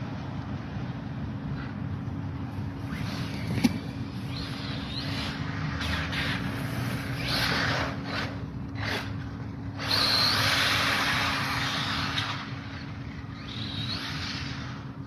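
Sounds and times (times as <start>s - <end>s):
rc car motor whirring: 2.6s - 15.0s
high squeals: 2.8s - 8.4s, 9.8s - 14.8s.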